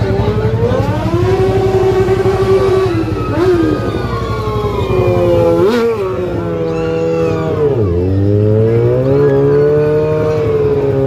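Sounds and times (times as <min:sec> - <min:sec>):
engines running low: 0:00.0 - 0:11.0
motorcycle engine revving: 0:00.0 - 0:11.0.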